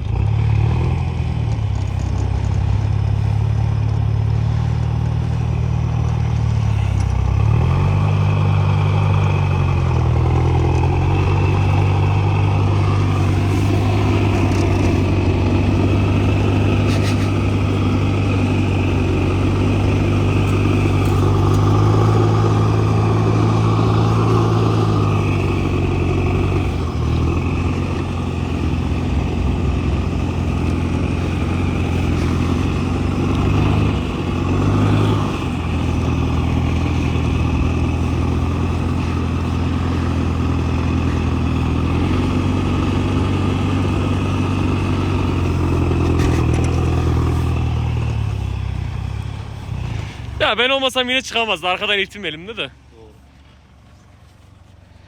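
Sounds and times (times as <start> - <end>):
pickup engine revving under load: 0.0 - 55.0.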